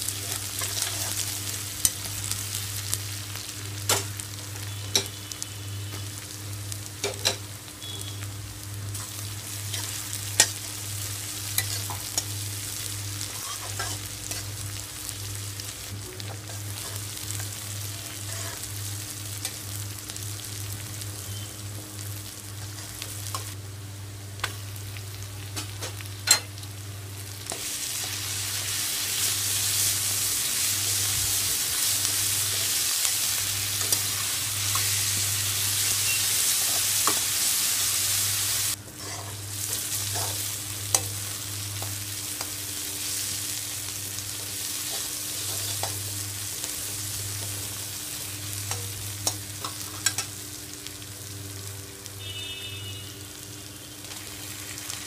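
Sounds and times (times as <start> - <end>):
vegetables sizzling in a wok: 0.0 - 55.0
metal spatula scraping pan: 39.0 - 39.4.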